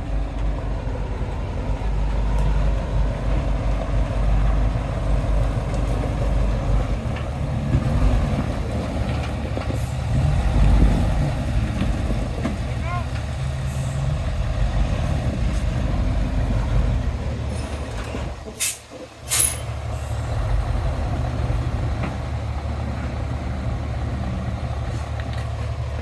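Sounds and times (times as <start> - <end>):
heavy diesel engines running: 0.0 - 26.0
short sharp hisses: 18.6 - 19.6.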